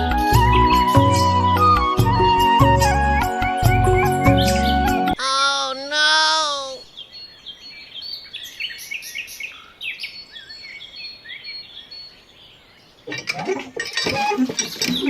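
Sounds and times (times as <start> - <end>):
small birds chirping: 3.5 - 13.1.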